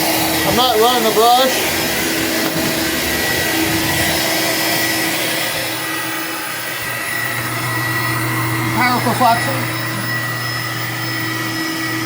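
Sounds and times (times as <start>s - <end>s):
rushing air: 0.0s - 8.1s
vacuum cleaner motor whine: 0.0s - 12.0s.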